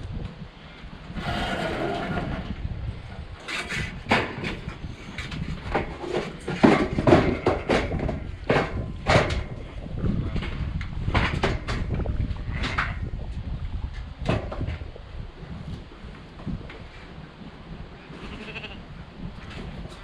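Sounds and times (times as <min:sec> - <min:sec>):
low rumble: 0:01.0 - 0:05.7.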